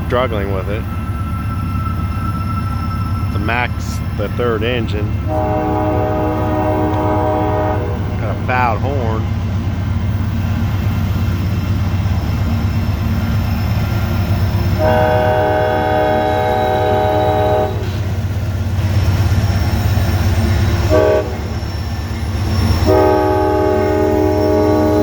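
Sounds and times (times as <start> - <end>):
diesel locomotive engine drone: 0.0 - 25.0
locomotive horn: 4.8 - 9.3, 14.8 - 18.2, 20.9 - 21.6, 22.8 - 25.0.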